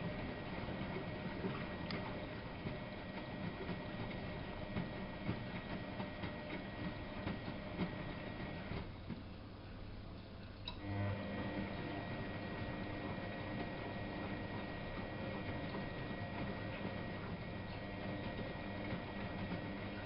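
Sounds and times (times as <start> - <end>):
washing machine running: 0.0 - 9.6, 10.6 - 20.0.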